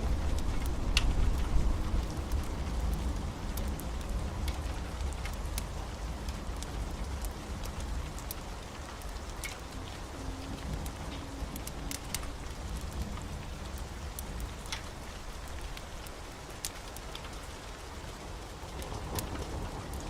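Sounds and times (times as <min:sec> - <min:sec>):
heavy rain: 0:00.0 - 0:20.0
low continuous rumble: 0:00.0 - 0:20.0
rain drops ticking: 0:00.0 - 0:20.0.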